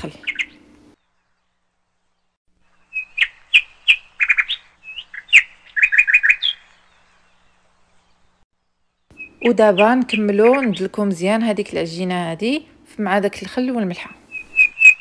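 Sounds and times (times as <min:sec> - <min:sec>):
small bird chirping: 0:00.0 - 0:10.9, 0:14.2 - 0:15.0.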